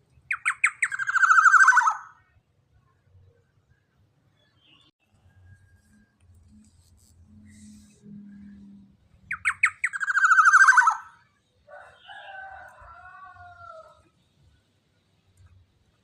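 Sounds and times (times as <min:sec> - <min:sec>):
oriole calling: 0:09.3 - 0:11.2.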